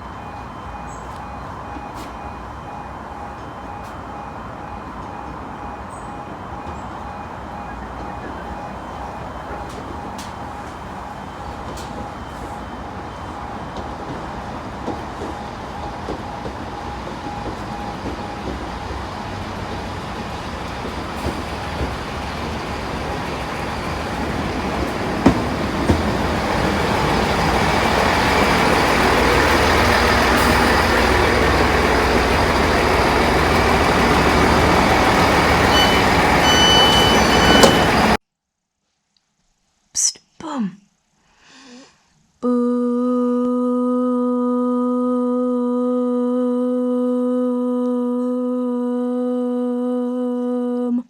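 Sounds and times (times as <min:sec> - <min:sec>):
train running noise: 0:00.0 - 0:38.2
short beeps: 0:35.6 - 0:38.2.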